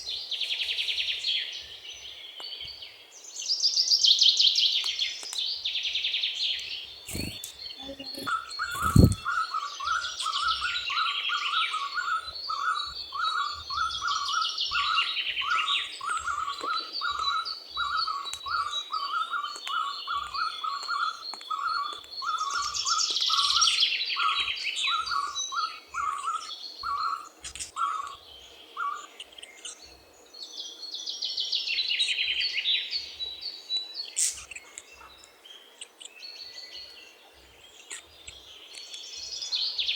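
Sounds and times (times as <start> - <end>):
fast high bird chirping: 7.1 - 9.3
low thumps: 8.2 - 9.2.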